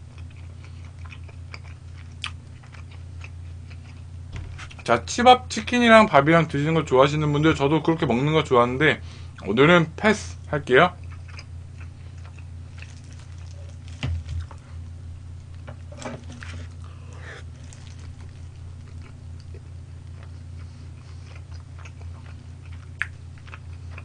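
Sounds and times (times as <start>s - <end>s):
chewing crispy chicken: 0.0s - 5.0s, 10.9s - 14.9s, 15.5s - 24.0s
crunching bites: 11.1s - 14.6s.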